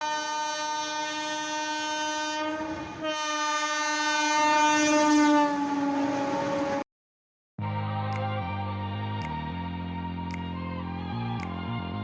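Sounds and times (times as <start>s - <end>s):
loud horn blast: 0.0s - 6.8s.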